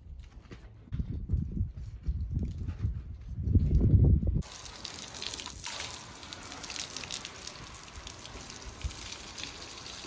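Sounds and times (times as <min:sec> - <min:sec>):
water spraying onto truck bed: 0:04.4 - 0:10.0.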